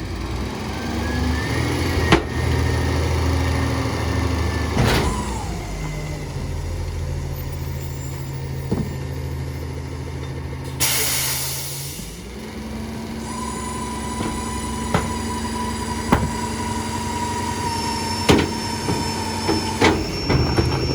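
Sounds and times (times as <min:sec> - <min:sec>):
diesel truck engine running: 0:00.0 - 0:20.9
sharp air hiss: 0:10.8 - 0:12.2.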